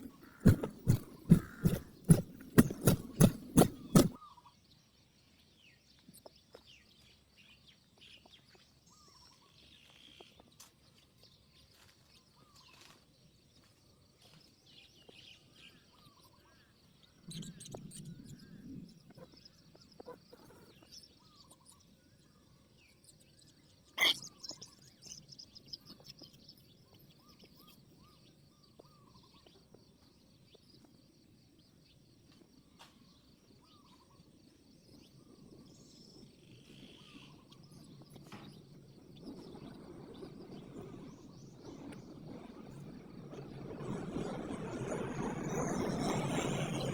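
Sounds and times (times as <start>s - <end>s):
rapid loud thumps: 0.0s - 4.2s
small birds chirping: 0.0s - 4.4s, 13.6s - 43.6s.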